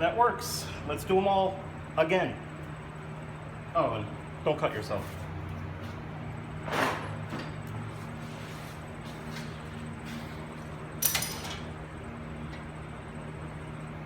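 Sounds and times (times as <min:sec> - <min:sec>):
tools and bolts clattering: 0:11.0 - 0:11.7.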